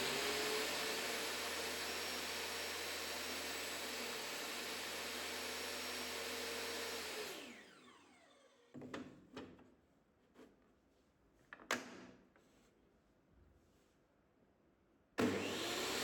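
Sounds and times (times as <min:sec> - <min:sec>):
power tool motor spinning down: 0:00.0 - 0:08.8, 0:15.2 - 0:16.0.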